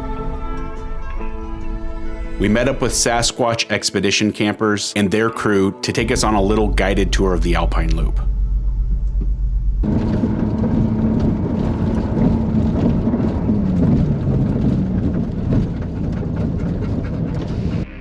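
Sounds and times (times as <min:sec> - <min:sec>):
steady low hum: 0:06.0 - 0:17.9
off-road vehicle engine rumble: 0:06.0 - 0:18.0.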